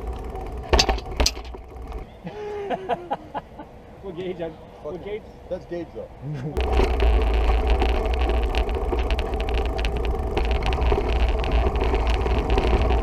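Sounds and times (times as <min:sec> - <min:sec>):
wind buffeting microphone: 0:06.6 - 0:13.0.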